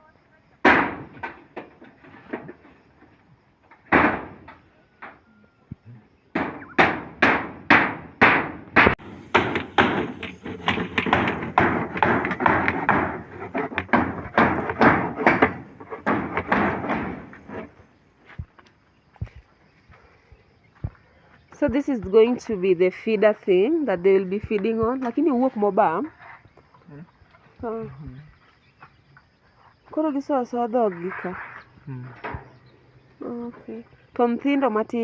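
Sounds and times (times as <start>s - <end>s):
sharp knocking strikes: 3.9s - 4.4s, 6.4s - 17.4s.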